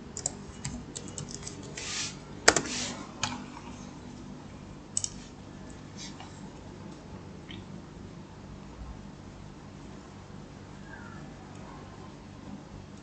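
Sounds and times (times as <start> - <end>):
keyboard typing clicks: 0.2 - 1.8.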